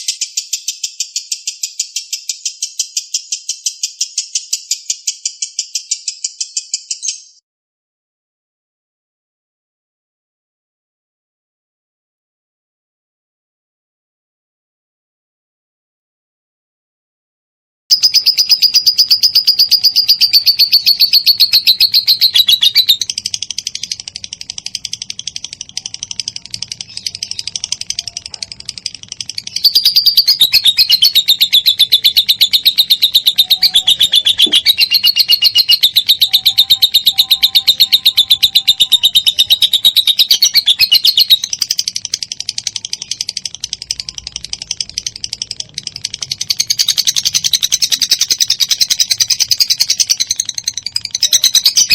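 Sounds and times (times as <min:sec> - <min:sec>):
bird shrill chatter: 0:17.9 - 0:51.9.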